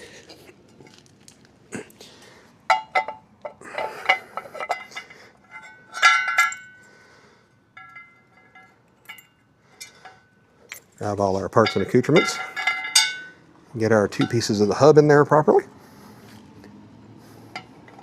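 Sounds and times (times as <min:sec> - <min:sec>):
metal parts clinking together: 0:02.7 - 0:06.9, 0:07.8 - 0:13.4.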